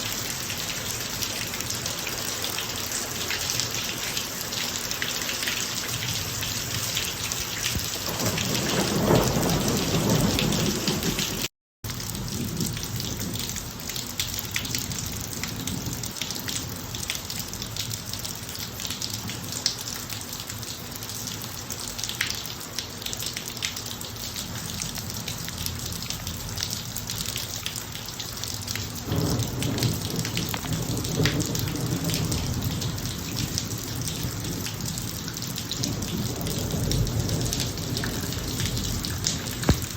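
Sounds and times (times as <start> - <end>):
rain falling on driveway: 0.0 - 39.9
thunder rumbling: 7.8 - 11.5, 29.0 - 39.9.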